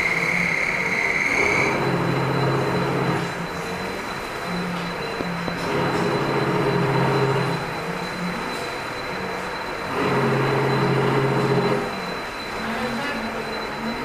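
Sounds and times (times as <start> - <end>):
motor hum: 0.0 - 12.6
machine high whine: 0.0 - 14.0.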